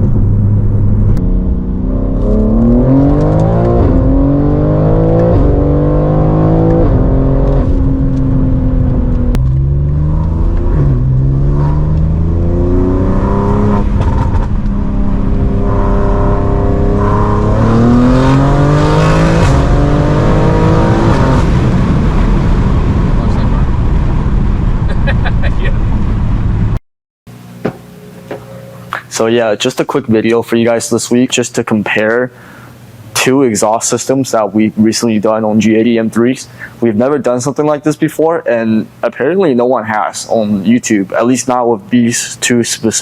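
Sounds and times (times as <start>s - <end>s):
car engine accelerating hard: 0.0s - 24.9s.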